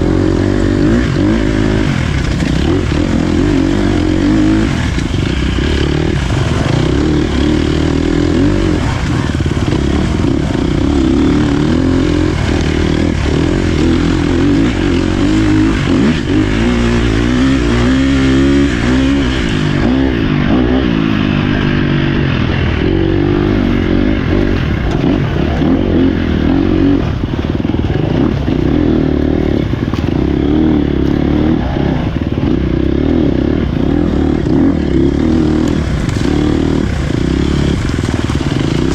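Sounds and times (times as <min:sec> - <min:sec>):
dirt bike engine running hard: 0:00.0 - 0:38.9.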